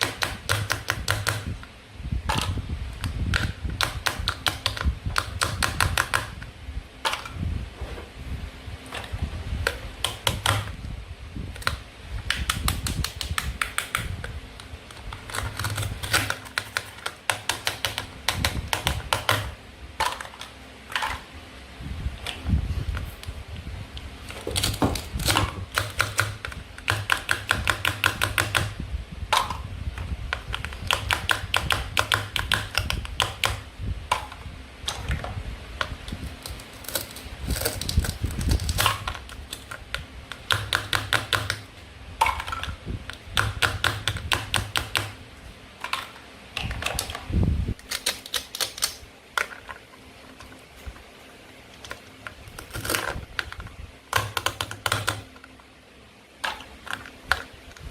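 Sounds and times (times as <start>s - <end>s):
sharp plastic clicking and crackling: 11.5s - 21.2s, 24.0s - 35.2s, 35.8s - 45.2s, 45.8s - 51.1s.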